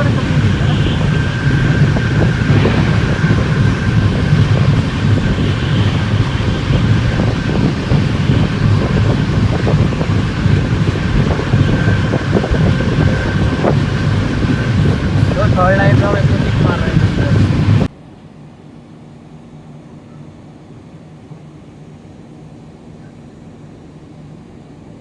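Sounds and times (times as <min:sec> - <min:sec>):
train wheels rumbling on rails: 0:00.0 - 0:17.9
wind buffeting microphone: 0:00.0 - 0:17.9.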